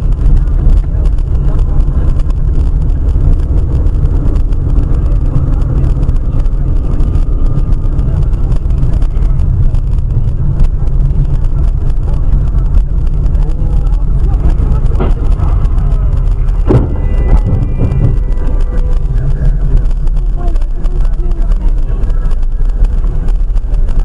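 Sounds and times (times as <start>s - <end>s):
car engine rumble: 0.0s - 24.0s
road noise: 0.0s - 24.0s.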